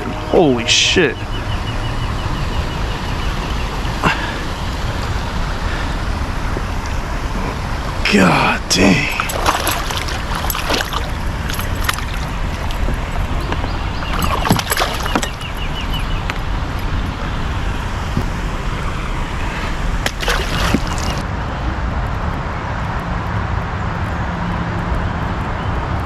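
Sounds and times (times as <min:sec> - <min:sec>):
creek water rushing: 0:00.0 - 0:21.3.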